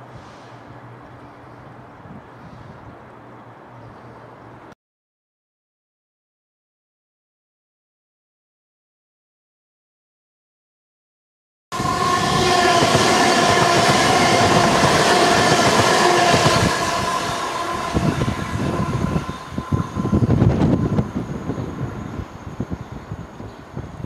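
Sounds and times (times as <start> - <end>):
train passing at speed: 11.7 - 24.0.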